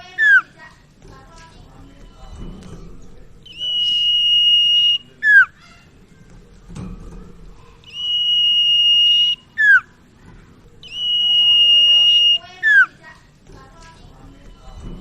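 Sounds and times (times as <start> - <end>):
bird whistling song: 0.1 - 0.6, 3.4 - 5.8, 7.8 - 10.0, 10.8 - 13.0.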